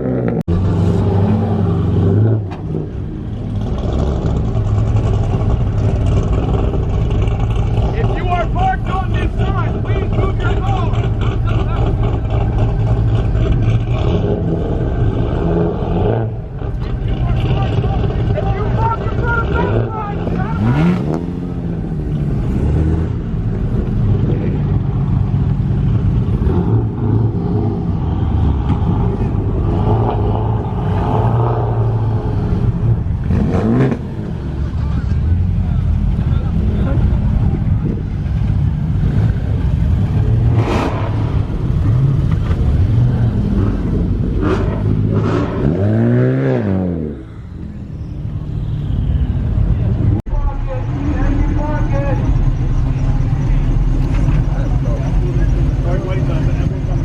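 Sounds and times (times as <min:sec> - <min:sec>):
car engine idling: 0:02.8 - 0:14.1, 0:16.3 - 0:26.4, 0:47.2 - 0:57.0.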